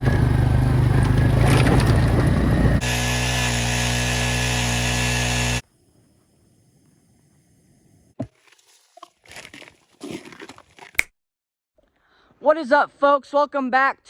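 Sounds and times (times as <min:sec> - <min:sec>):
ice auger engine running: 0:00.0 - 0:05.6.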